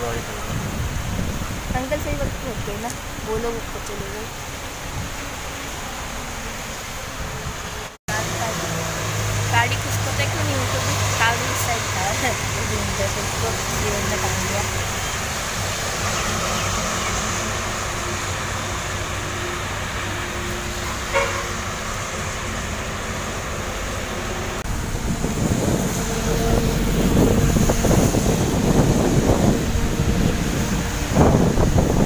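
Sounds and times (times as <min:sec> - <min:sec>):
wind buffeting microphone: 0:00.0 - 0:05.3, 0:24.4 - 0:32.0
vehicles passing: 0:00.0 - 0:32.0
vehicle horn toot: 0:21.1 - 0:21.6.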